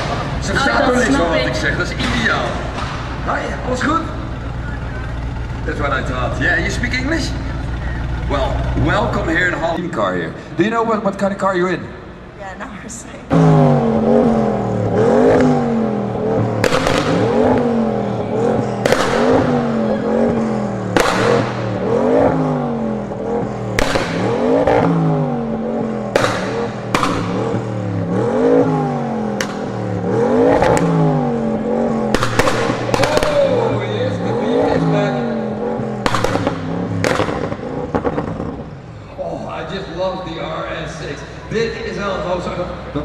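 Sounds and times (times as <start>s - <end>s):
car engine revving: 0.0s - 43.0s
exhaust pops and bangs: 1.9s - 6.9s, 13.3s - 38.9s.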